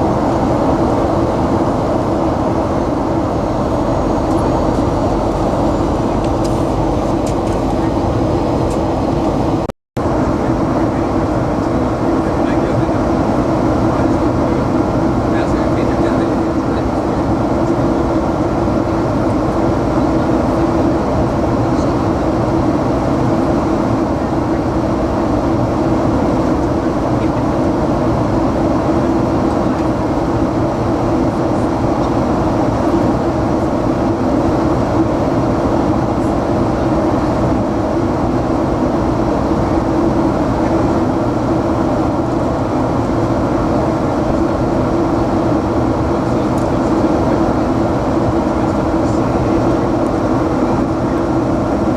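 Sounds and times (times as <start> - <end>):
jet cabin engine and airflow noise: 0.0 - 51.9.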